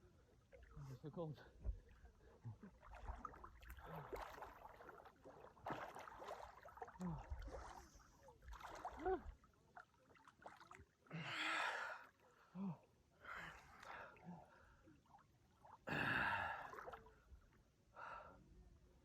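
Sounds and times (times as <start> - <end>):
water splashing: 0.2 - 11.1, 16.6 - 17.2.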